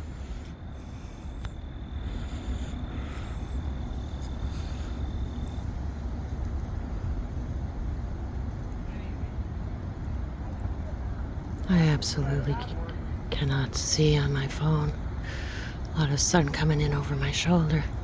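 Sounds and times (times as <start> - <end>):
thin steady high tone: 0.0 - 6.1.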